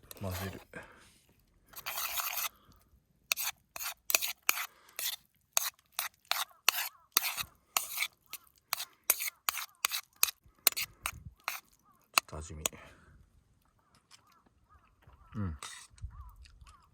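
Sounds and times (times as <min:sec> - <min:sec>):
utensil scraping container: 0:00.0 - 0:00.7, 0:01.7 - 0:02.6, 0:03.3 - 0:12.3, 0:15.6 - 0:16.0.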